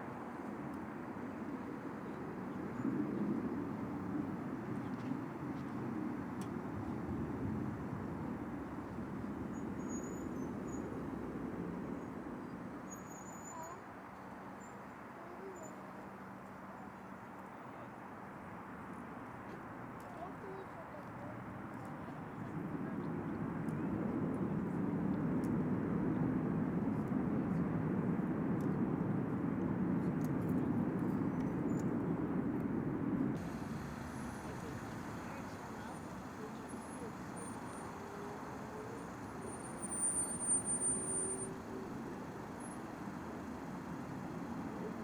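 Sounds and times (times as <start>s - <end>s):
distant jet aircraft rumble: 20.8s - 45.0s.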